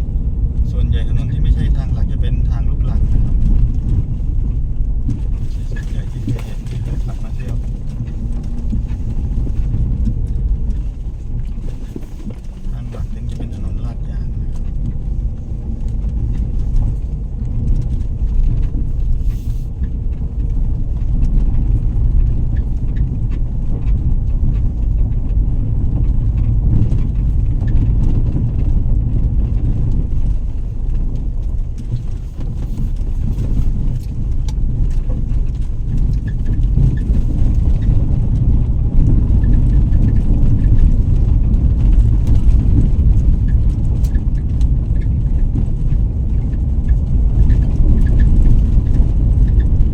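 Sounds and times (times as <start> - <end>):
vehicle rumble: 0.0 - 49.9.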